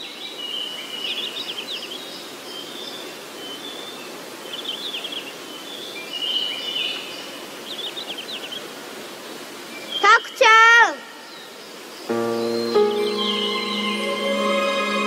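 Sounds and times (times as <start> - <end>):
background hiss: 0.0 - 15.0
birds chirping: 11.3 - 15.0.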